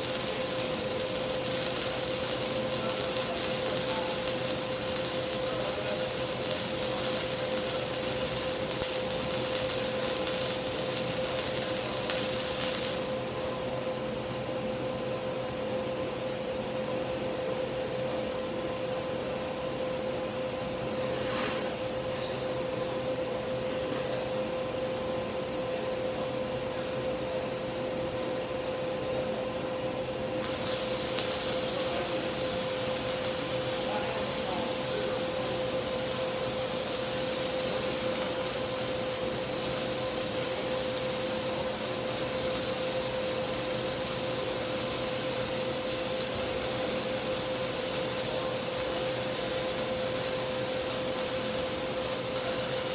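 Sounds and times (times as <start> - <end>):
welding arc crackling hiss: 0.0 - 14.1, 30.4 - 52.9
electrical hum: 0.0 - 20.8, 28.4 - 52.9.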